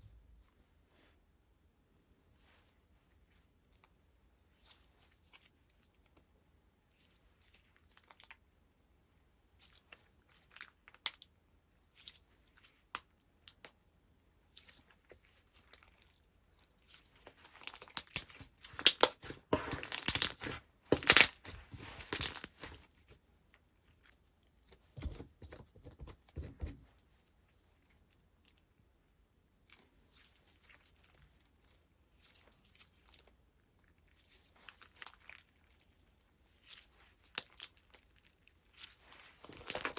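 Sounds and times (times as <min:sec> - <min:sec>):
slime crackling and popping: 0:17.4 - 0:22.8, 0:39.2 - 0:39.9.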